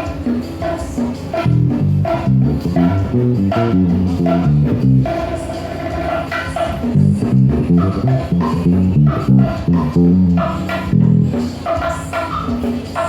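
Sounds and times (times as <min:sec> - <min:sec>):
percussion ticks: 0:00.0 - 0:13.0
band playing: 0:01.4 - 0:05.4, 0:06.8 - 0:11.6
electric bass guitar line: 0:01.4 - 0:11.8.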